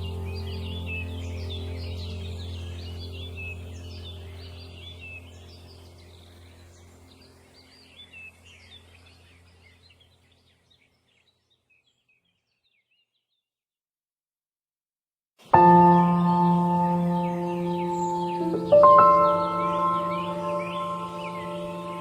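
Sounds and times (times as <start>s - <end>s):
low steady hum: 0.0s - 10.3s
songbirds chirping: 0.0s - 13.5s, 15.4s - 22.0s.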